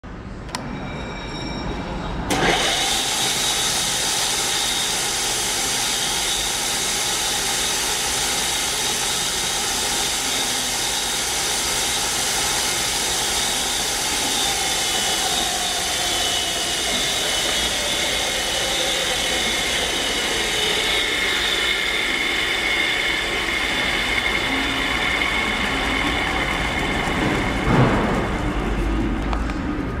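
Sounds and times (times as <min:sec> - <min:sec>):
grinder whining: 0:02.3 - 0:29.1
sharp knock: 0:27.6 - 0:28.4.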